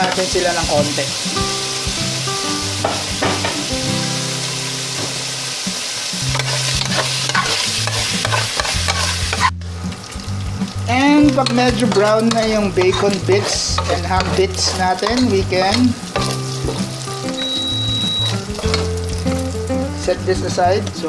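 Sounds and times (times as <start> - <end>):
background music with low notes: 0.0 - 21.0
meat sizzling in oil: 0.0 - 21.0
stirring in a pan: 6.2 - 9.6, 11.0 - 19.7.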